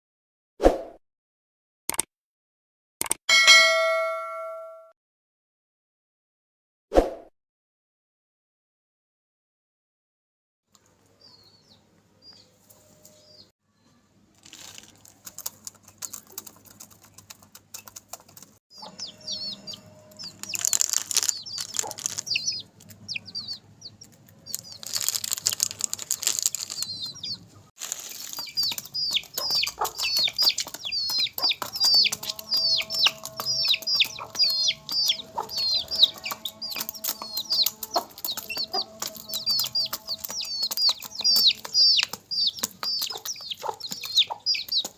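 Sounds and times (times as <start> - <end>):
chicks peeping: 11.1 - 13.5, 15.0 - 44.9
pecking clicks: 15.2 - 18.6, 20.2 - 27.2, 28.3 - 44.9
loud rustling: 20.3 - 23.0, 24.5 - 27.0, 27.8 - 29.4.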